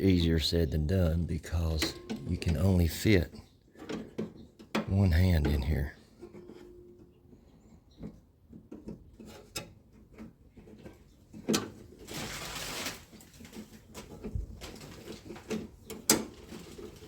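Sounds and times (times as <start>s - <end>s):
scraping rustle: 8.0s - 17.0s.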